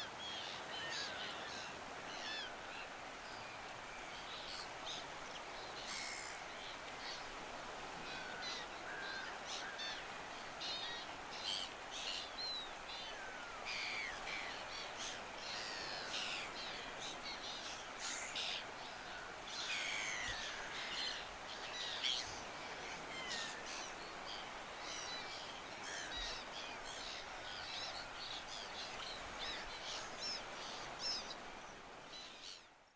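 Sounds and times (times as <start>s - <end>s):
steady background hiss: 0.0s - 32.9s.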